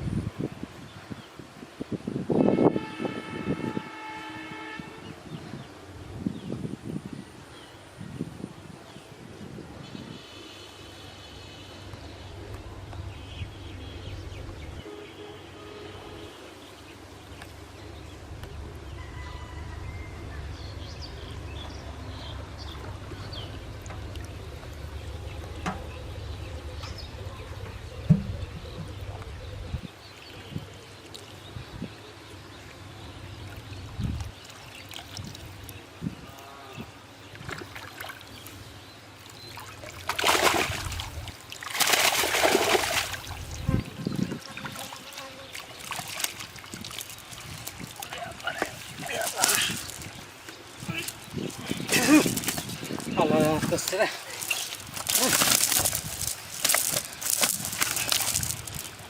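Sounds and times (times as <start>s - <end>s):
water rumbling: 16.4s - 29.8s, 36.8s - 59.0s
faint water trickle: 30.1s - 41.7s, 42.9s - 52.3s
loud water splashes: 39.4s - 43.6s, 44.6s - 50.2s, 53.2s - 59.0s.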